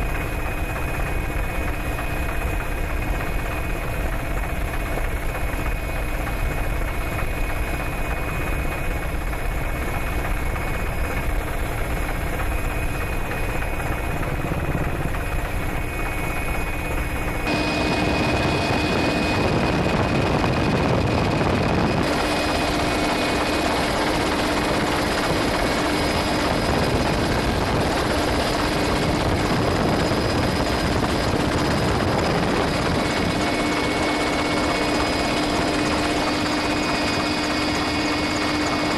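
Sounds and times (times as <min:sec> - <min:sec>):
helicopter rotor and turbine: 0:00.0 - 0:38.9.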